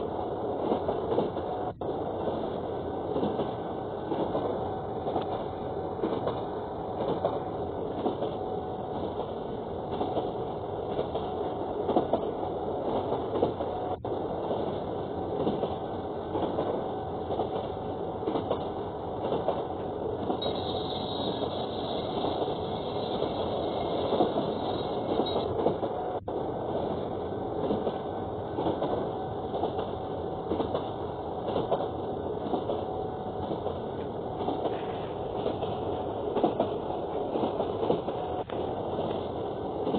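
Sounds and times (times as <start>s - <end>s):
train wheels rumbling and rattling: 0.0s - 39.9s
train squeal or hiss: 20.4s - 25.5s.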